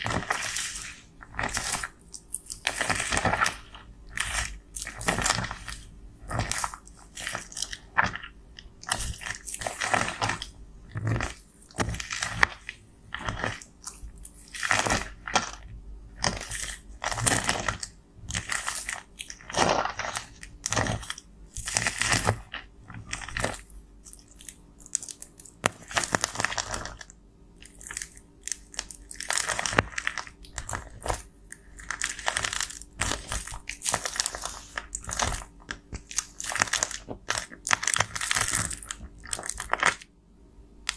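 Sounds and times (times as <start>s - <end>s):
powder being crushed and scraped: 0.0s - 40.1s.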